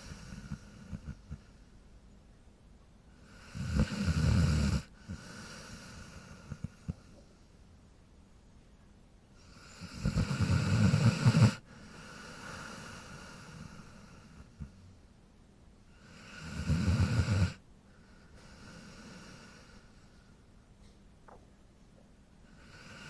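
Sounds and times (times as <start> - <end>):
dog snoring: 0.0 - 1.6, 3.2 - 7.1, 9.4 - 14.8, 15.9 - 17.6, 18.4 - 19.9, 22.5 - 23.0
quiet breathy sound: 0.0 - 23.0.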